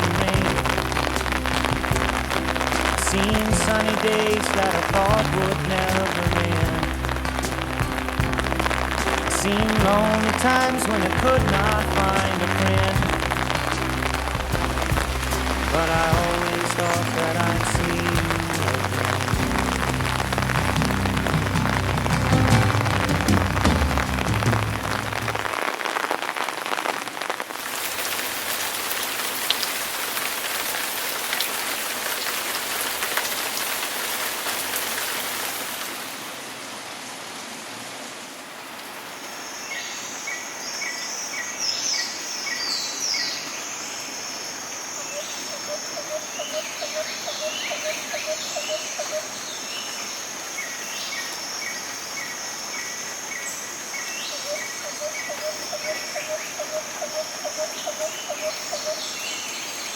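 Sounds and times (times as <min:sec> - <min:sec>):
steady rain falling: 0:00.0 - 0:59.9
birds chirping: 0:39.4 - 0:59.9.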